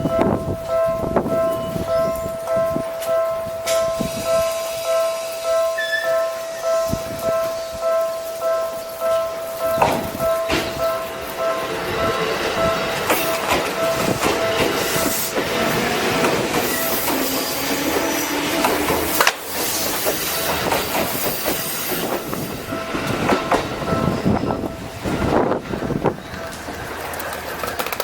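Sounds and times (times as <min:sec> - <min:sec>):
electric train running on rails: 0:00.0 - 0:28.0
train wheels clattering over track: 0:08.7 - 0:28.0.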